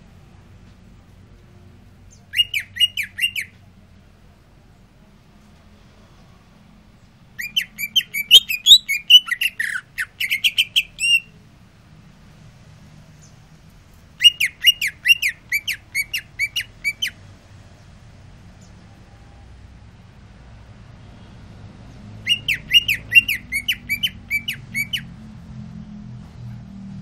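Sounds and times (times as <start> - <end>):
bird chirping rapidly: 2.1 - 3.6, 7.4 - 11.4, 14.2 - 17.2, 22.2 - 25.1.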